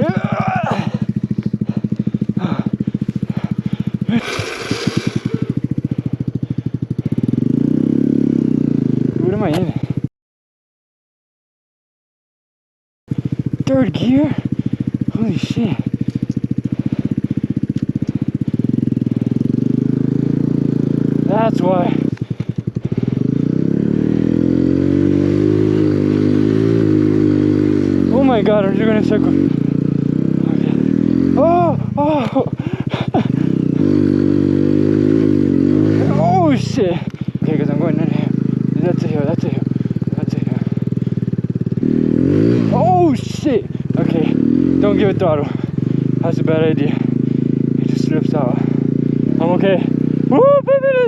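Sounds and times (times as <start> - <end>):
motorcycle engine running: 0.0 - 10.1, 13.1 - 51.0.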